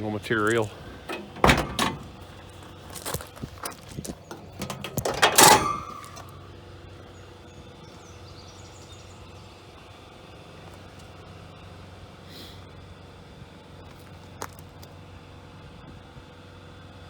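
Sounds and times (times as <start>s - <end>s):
light clicks and knocks: 0.4s - 6.3s
loud metallic clunk: 0.9s - 2.6s, 4.3s - 6.4s.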